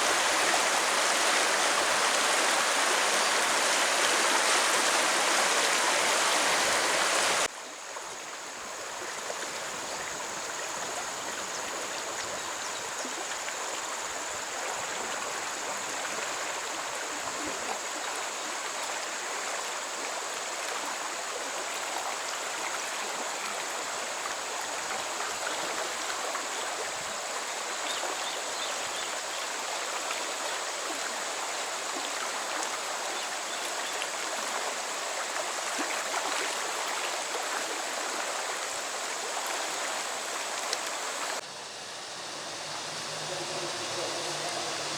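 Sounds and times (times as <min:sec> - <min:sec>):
loud rush of water: 0:00.0 - 0:07.5, 0:31.3 - 0:44.9
stream flowing: 0:00.0 - 0:44.9.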